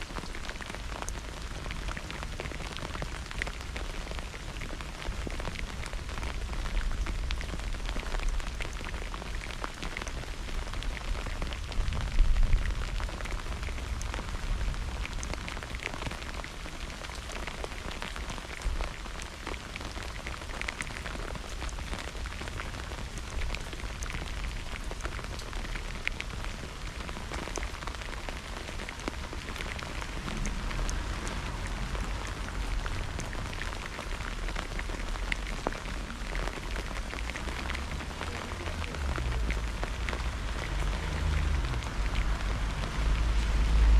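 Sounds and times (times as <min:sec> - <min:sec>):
rain drops hitting: 0:00.0 - 0:43.9
thunder rumble: 0:28.3 - 0:35.6.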